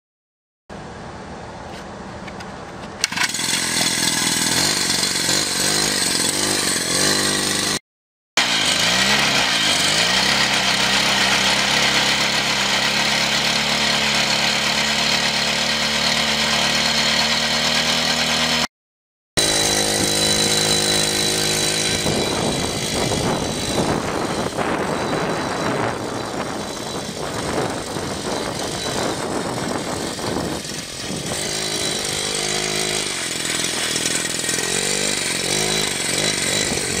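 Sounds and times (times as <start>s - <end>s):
small motorbike engine revving: 3.0s - 7.8s, 8.4s - 18.7s, 19.4s - 37.0s.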